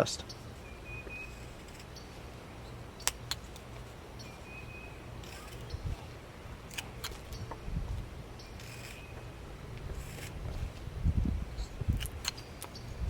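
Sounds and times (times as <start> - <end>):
knife shaving wood: 1.1 - 2.0
sharp clicks: 3.0 - 3.9, 6.7 - 7.6, 11.9 - 12.8.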